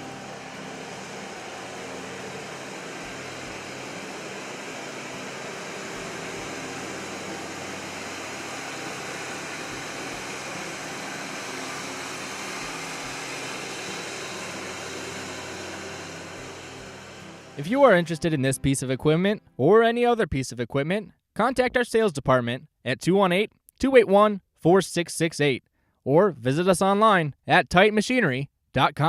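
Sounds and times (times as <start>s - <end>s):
tractor diesel engine running: 0.0s - 18.2s.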